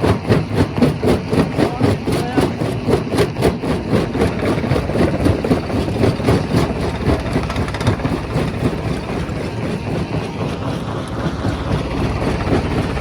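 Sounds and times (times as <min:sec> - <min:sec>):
rock crusher drone: 0:00.0 - 0:13.0.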